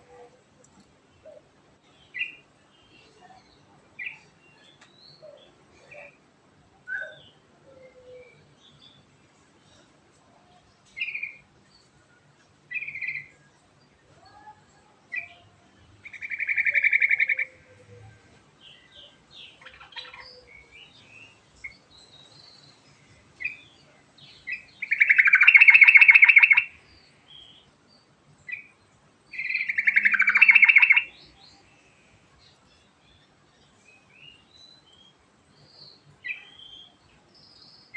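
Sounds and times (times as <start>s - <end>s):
bulbul chirping and trilling: 24.8s - 26.7s, 29.4s - 31.1s.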